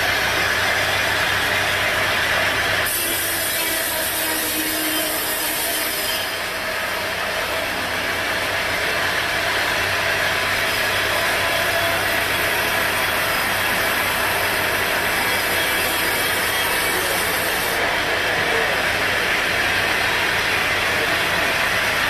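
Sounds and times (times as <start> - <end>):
engine hum: 0.0 - 2.9
saw cutting through wood: 0.0 - 22.0.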